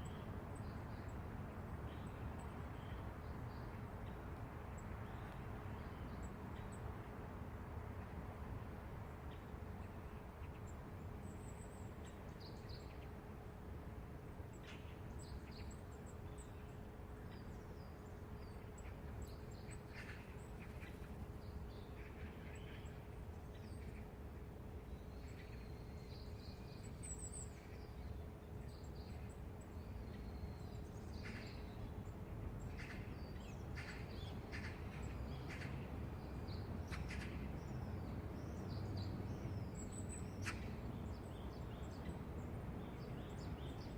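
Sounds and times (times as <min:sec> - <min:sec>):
faint steady hum: 0:00.0 - 0:43.9
low city rumble: 0:00.0 - 0:43.9.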